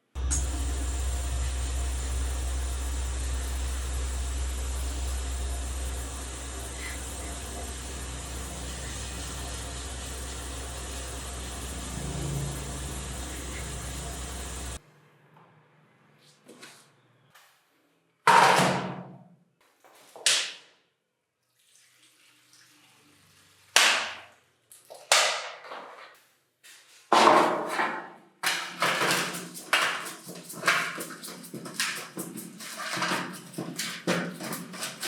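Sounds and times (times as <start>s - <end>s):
quick repeated scrubbing strokes: 28.6s - 35.0s.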